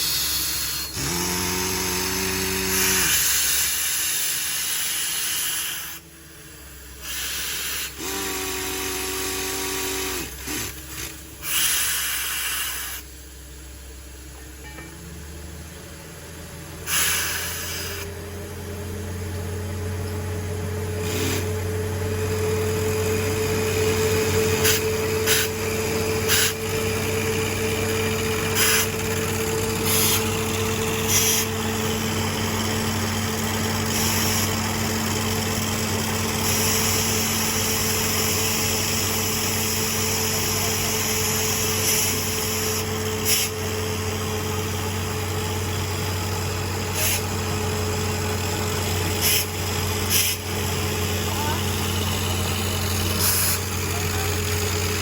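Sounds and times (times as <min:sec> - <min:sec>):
bursts of hissing: 0:00.0 - 0:06.0, 0:07.0 - 0:10.8, 0:11.4 - 0:13.1, 0:16.9 - 0:18.0, 0:24.6 - 0:25.7, 0:26.3 - 0:26.8, 0:28.4 - 0:31.8
drilling rig engine running: 0:00.0 - 0:13.1, 0:14.0 - 0:55.0.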